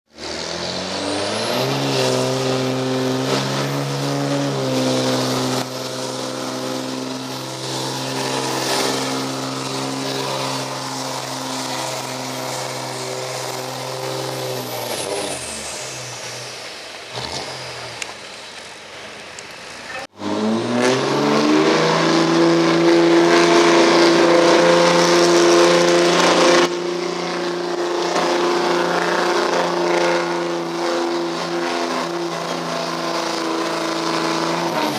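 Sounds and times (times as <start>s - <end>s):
diesel truck engine revving: 0.1s - 34.9s.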